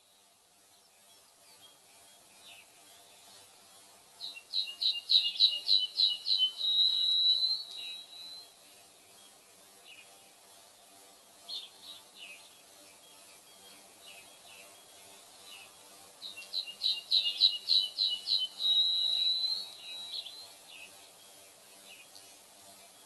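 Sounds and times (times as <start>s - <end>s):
songbird trilling: 4.5s - 8.4s, 16.4s - 20.4s.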